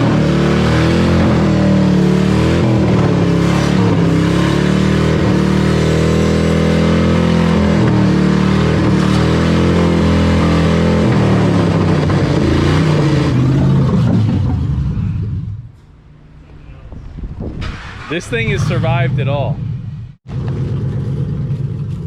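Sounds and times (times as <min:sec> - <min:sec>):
car engine running at high revs: 0:00.0 - 0:15.7.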